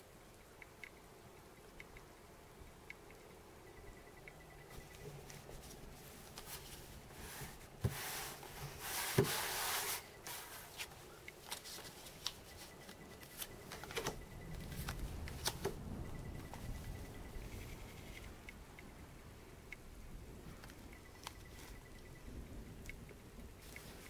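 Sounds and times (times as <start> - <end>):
cards shuffling: 8.9 - 15.8.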